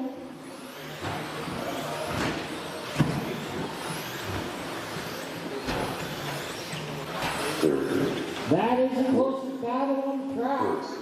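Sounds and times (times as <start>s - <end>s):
electric motor whine and tyre noise: 0.0s - 8.5s.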